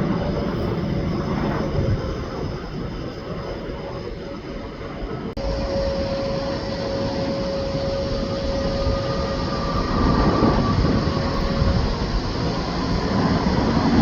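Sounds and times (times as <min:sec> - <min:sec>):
high engine whine: 0:00.0 - 0:14.0
jet airliner engines running: 0:00.0 - 0:14.0.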